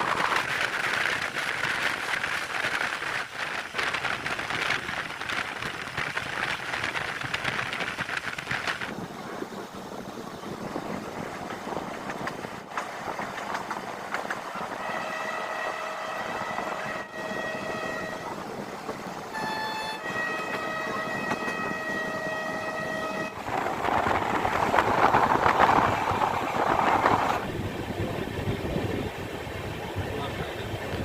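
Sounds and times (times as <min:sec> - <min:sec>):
train rushing rumble: 0:00.0 - 0:31.0
train horn blasts: 0:14.7 - 0:18.5, 0:19.3 - 0:23.5.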